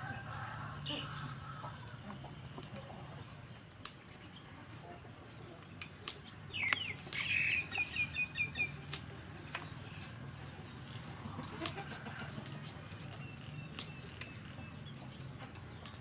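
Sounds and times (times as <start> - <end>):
bird chirping: 6.2 - 8.9, 12.8 - 16.0
peeler scraping potato skin: 10.9 - 16.0.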